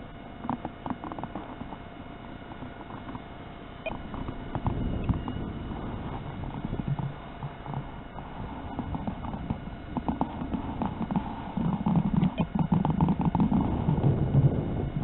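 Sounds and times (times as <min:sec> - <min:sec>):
gusty wind buffeting microphone: 0:04.0 - 0:15.0.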